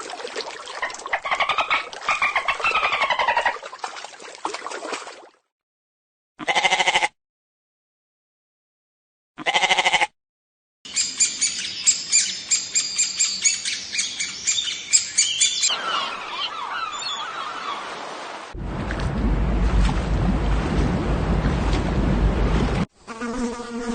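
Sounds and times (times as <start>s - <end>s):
birds chirping and squawking: 1.1s - 3.6s, 10.9s - 18.0s
pulsing bleat-like animal call: 6.4s - 7.2s, 9.4s - 10.1s.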